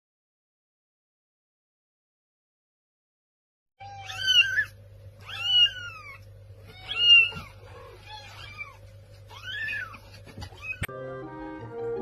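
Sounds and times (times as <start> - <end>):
cat meowing: 3.8 - 10.9
steady low hum: 3.8 - 12.0.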